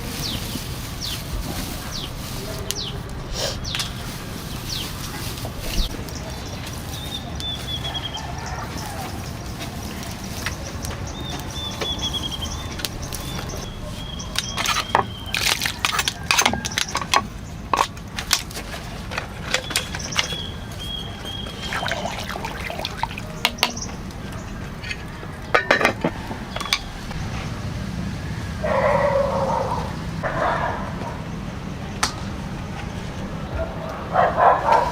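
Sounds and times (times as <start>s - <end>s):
thin high bird chirps: 10.3s - 17.5s, 19.5s - 25.2s
dog barking: 28.6s - 31.2s, 33.6s - 34.9s.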